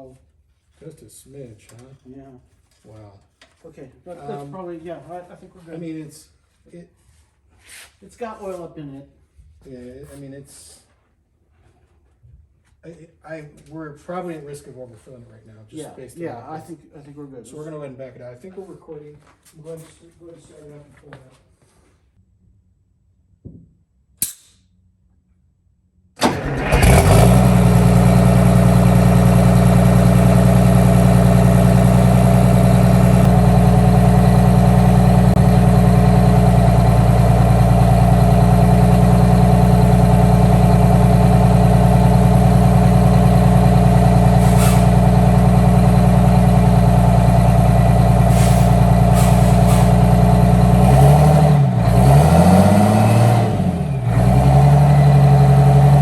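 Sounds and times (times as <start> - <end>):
diesel engine starting and idling: 26.2 - 56.0.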